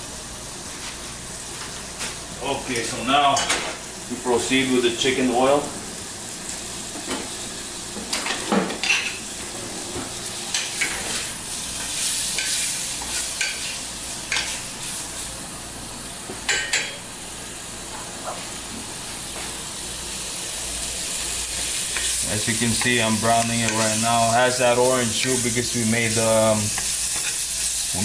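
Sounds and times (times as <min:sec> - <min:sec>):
chicken skins sizzling in a pan: 0:00.0 - 0:28.0.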